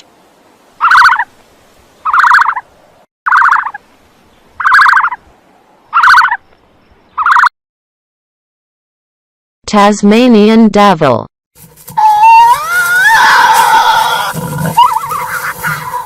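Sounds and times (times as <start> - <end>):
bird calling: 0.8 - 1.3, 2.0 - 2.7, 3.3 - 5.3, 5.9 - 7.5, 11.8 - 16.0.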